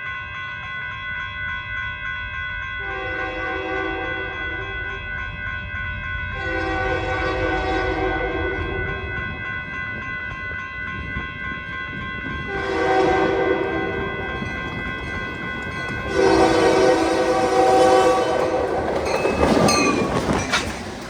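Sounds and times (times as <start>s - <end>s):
locomotive engine and wheels rumble: 0.8s - 21.0s
locomotive air horn blast: 2.8s - 4.3s, 6.4s - 8.6s, 12.5s - 13.9s, 16.1s - 19.0s.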